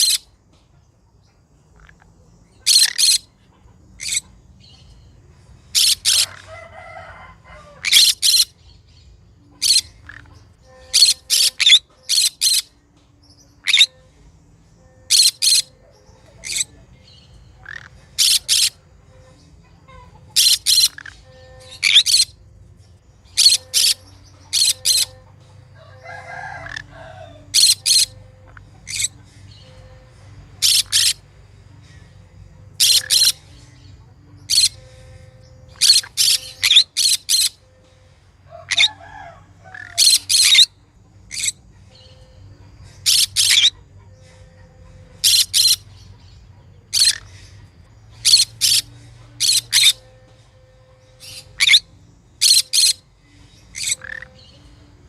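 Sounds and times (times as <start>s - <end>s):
parrot shrill calls: 0.0s - 0.2s, 2.6s - 3.3s, 5.7s - 8.6s, 10.9s - 12.7s, 13.6s - 13.9s, 15.1s - 15.7s, 17.6s - 18.8s, 20.0s - 22.4s, 23.3s - 25.2s, 25.8s - 28.2s, 30.6s - 31.2s, 32.8s - 33.4s, 34.5s - 34.8s, 35.7s - 37.6s, 38.6s - 40.7s, 41.3s - 41.6s, 43.0s - 43.8s, 45.2s - 45.8s, 48.2s - 50.0s, 51.2s - 53.0s, 53.7s - 54.4s.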